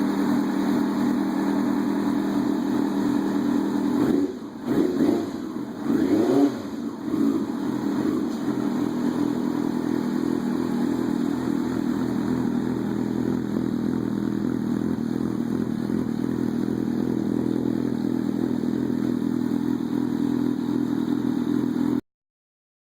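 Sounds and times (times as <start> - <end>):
motorcycle engine idling: 0.0 - 22.0
motorcycle engine throttle blips: 0.0 - 22.0.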